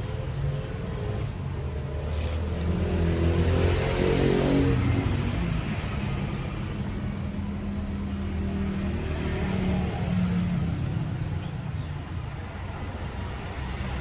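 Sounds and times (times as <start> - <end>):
vehicle engine passing: 0.0 - 7.0.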